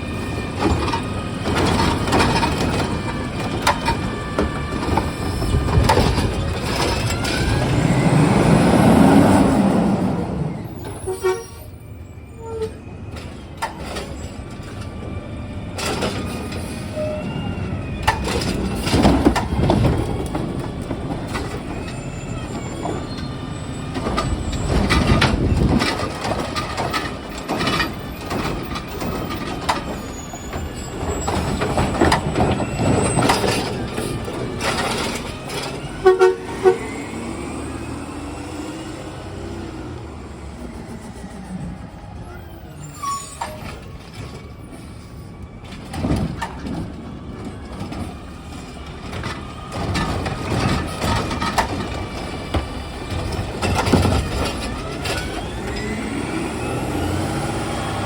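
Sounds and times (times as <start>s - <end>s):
truck engine: 0.0s - 58.0s
mechanical knocks and clatter: 23.9s - 35.8s, 49.0s - 55.5s.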